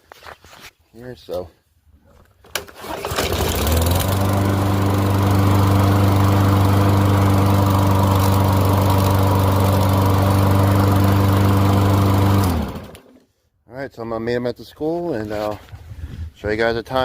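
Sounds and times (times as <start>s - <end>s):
lawn mower engine starting and running: 2.5s - 13.3s.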